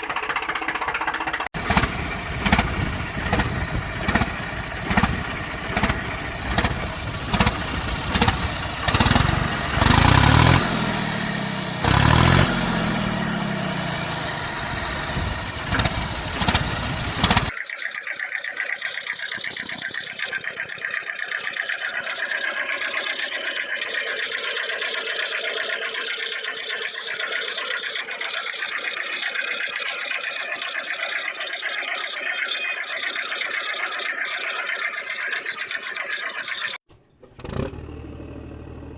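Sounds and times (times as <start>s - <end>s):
steady engine drone: 0.0s - 17.6s
loud falling tones: 0.0s - 28.0s.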